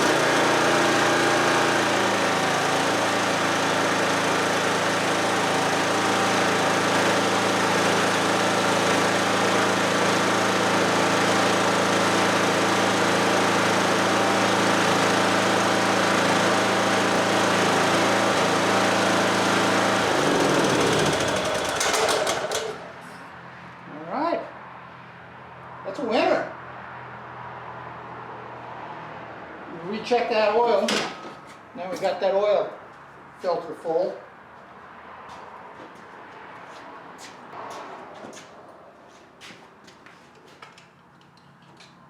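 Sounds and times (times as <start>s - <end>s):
engine spinning down: 0.0s - 23.0s
lawn tractor engine running: 0.0s - 23.2s.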